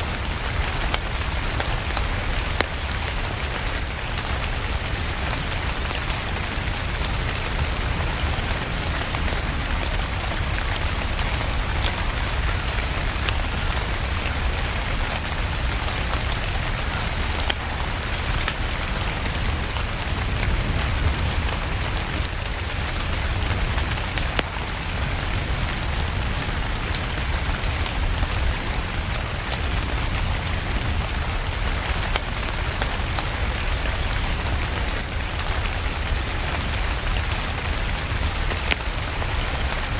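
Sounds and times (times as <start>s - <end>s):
steady rain: 0.0s - 39.9s
wood fire crackling: 0.0s - 39.9s.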